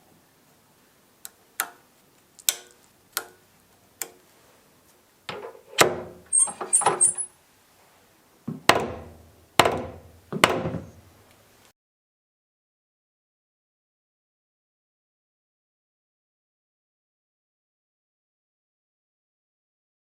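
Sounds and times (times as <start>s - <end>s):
short high squeaks: 6.3s - 7.4s
sharp knocks: 8.5s - 11.0s.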